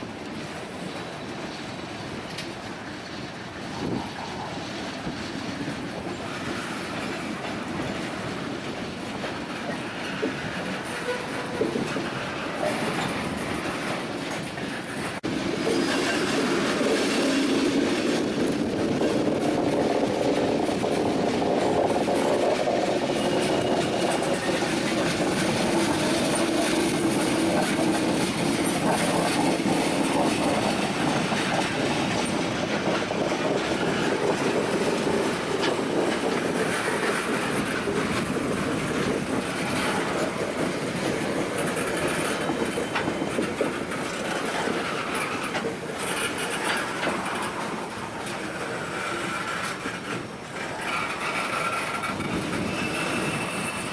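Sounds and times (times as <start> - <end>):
train wheels rumbling on rails: 0.0 - 53.9
wheels clicking over rail joints: 0.0 - 53.9.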